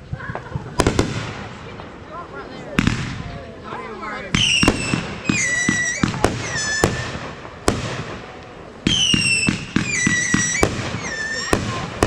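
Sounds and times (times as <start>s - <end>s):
fireworks bangs: 0.0s - 12.0s
fireworks whistling: 0.4s - 1.8s, 4.2s - 12.0s.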